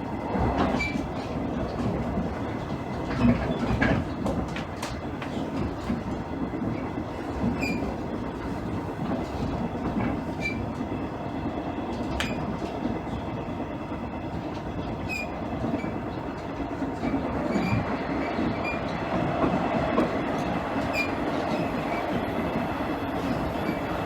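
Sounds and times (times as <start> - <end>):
train engine and wheels rumbling: 0.0 - 24.0
high wheel squeaks: 17.1 - 19.0, 20.4 - 24.0.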